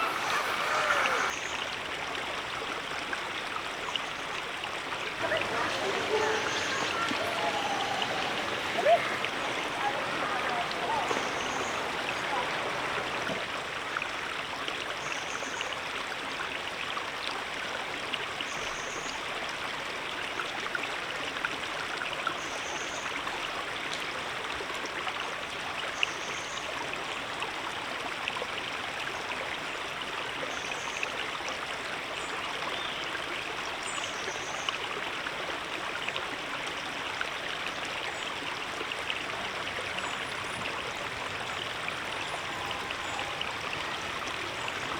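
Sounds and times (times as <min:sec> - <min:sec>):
river water flowing: 0:00.0 - 0:16.4, 0:26.7 - 0:44.9.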